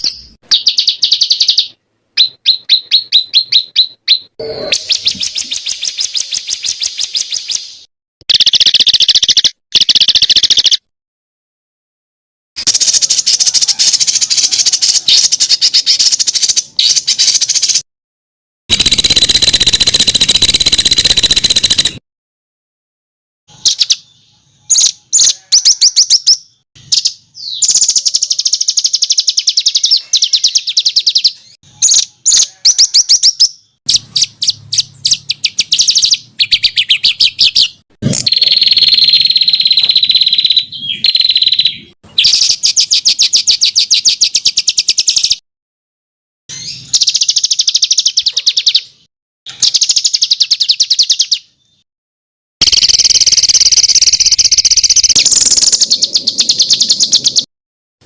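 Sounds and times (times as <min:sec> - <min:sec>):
songbird trills and chatter: 0:00.0 - 0:07.7, 0:23.7 - 0:45.4.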